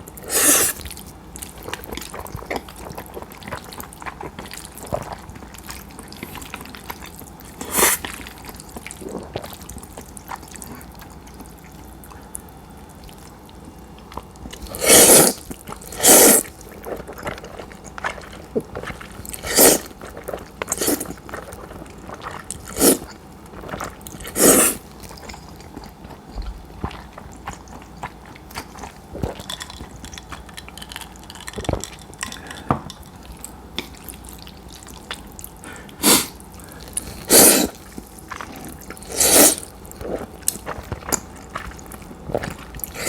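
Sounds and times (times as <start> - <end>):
quiet chewing: 0.0 - 43.0
noodles being slurped: 0.2 - 11.0, 14.2 - 26.2, 33.8 - 43.0.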